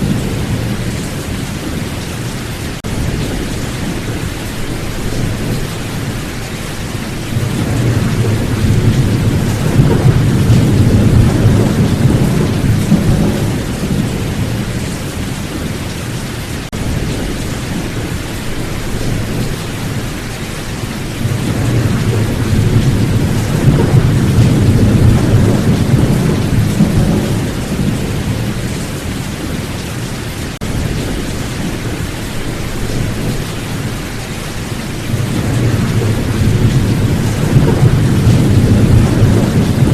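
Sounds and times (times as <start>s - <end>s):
steady rain: 0.0s - 39.9s
rolls of thunder: 7.3s - 15.0s, 21.1s - 29.6s, 35.0s - 39.9s.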